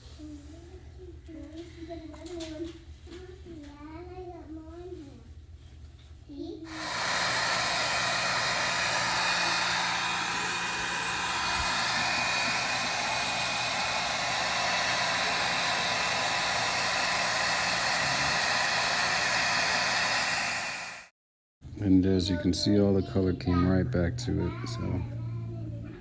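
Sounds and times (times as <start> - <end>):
hair dryer running: 6.7 - 21.1.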